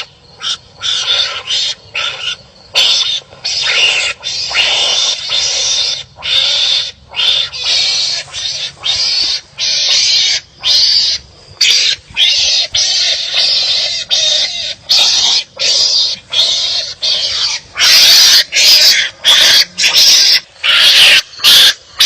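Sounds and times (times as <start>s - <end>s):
animals barking harshly: 0.0s - 22.0s.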